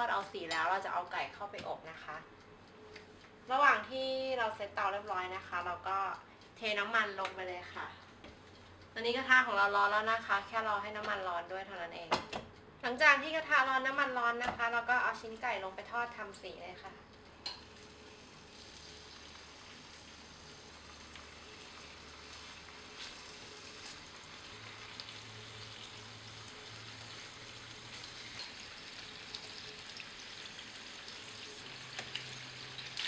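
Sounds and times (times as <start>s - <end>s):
food sizzling in hot oil: 17.4s - 33.0s.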